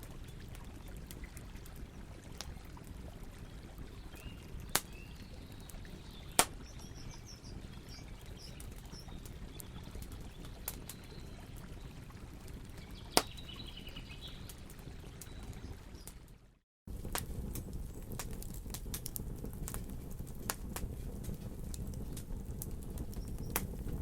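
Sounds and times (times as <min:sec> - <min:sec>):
burning wood popping: 0:00.0 - 0:11.6, 0:12.5 - 0:16.1, 0:16.9 - 0:24.0
campfire burning: 0:00.0 - 0:24.0
small birds chirping: 0:03.9 - 0:16.2, 0:17.2 - 0:24.0.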